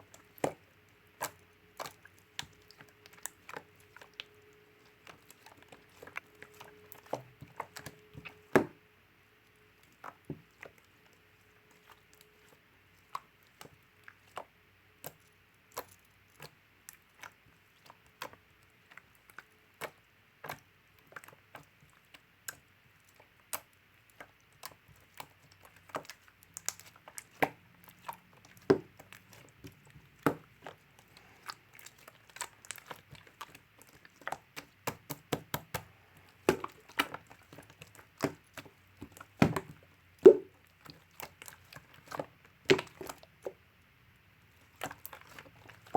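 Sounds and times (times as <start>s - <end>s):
slime clicking and popping: 31.4s - 43.2s.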